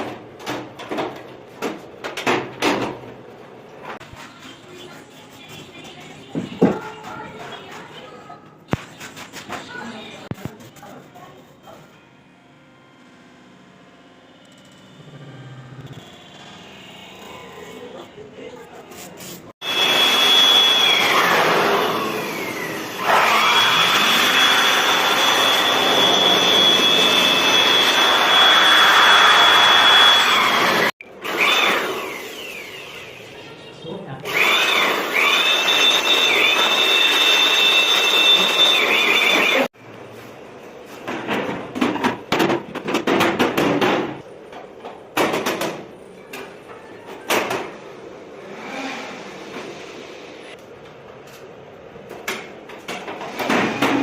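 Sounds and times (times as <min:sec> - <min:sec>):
electric blower motor whining: 0:19.6 - 0:33.2, 0:34.2 - 0:39.7.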